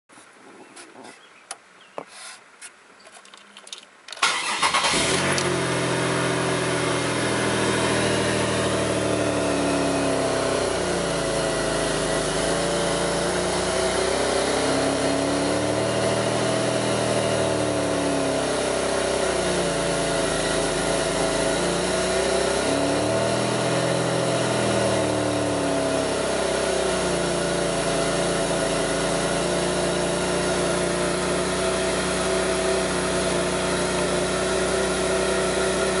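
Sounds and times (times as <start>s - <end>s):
car engine starting and idling roughly: 4.2s - 13.9s.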